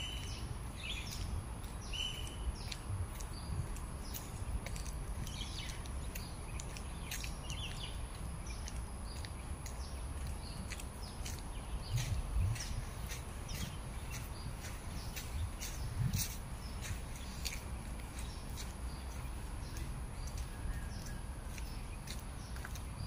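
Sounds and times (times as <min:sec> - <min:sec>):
birds chirping and calling: 0:00.0 - 0:23.0
heavy low thumps: 0:15.2 - 0:17.0.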